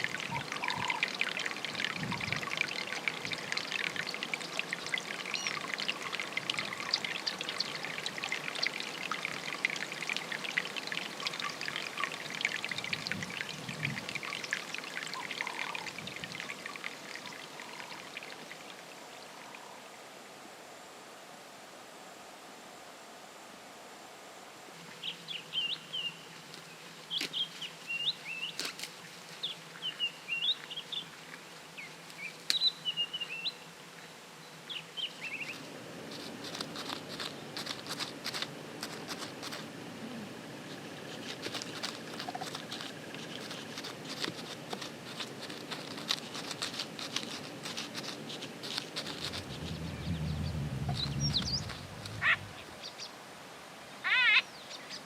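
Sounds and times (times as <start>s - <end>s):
small birds chirping: 0.0s - 9.4s, 24.9s - 28.7s, 29.4s - 53.2s
low rumble: 49.3s - 52.8s.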